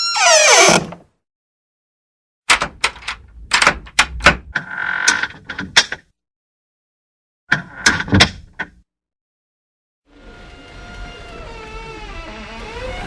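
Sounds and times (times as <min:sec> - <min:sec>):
door clicks and knocks: 0:00.0 - 0:01.0, 0:02.5 - 0:04.5
door hinge squeal: 0:00.0 - 0:01.0, 0:11.2 - 0:13.0.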